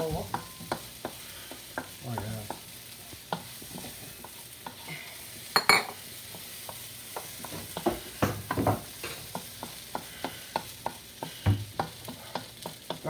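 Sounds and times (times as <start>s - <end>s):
onions sizzling in a frying pan: 0.0s - 13.0s
utensil clicking on pan: 0.3s - 3.6s, 6.2s - 13.0s
utensil stirring and scraping: 9.0s - 13.0s.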